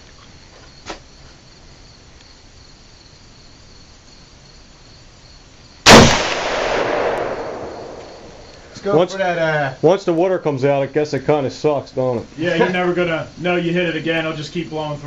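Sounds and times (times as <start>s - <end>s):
crickets chirping: 0.0s - 15.0s
loud gunshot with echo: 5.9s - 8.5s.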